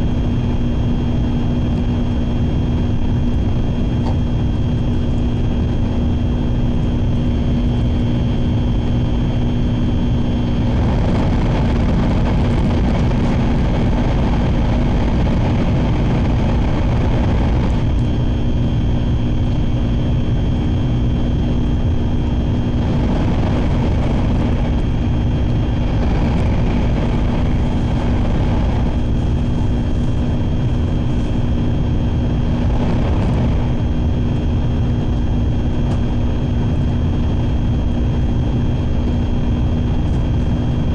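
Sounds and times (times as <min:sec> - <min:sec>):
train running gear rumble: 0:00.0 - 0:40.9
rushing noise: 0:22.5 - 0:34.3.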